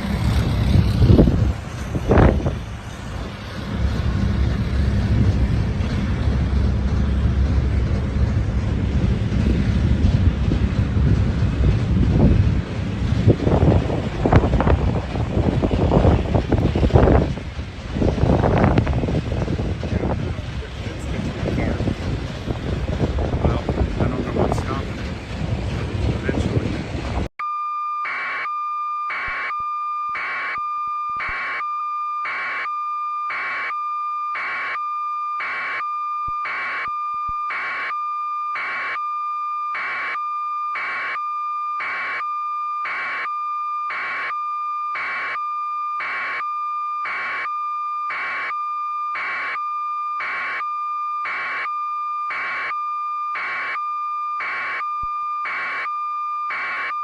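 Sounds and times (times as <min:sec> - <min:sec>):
steady electronic tone: 0:00.0 - 0:57.0
pulsing beep: 0:27.4 - 0:57.0.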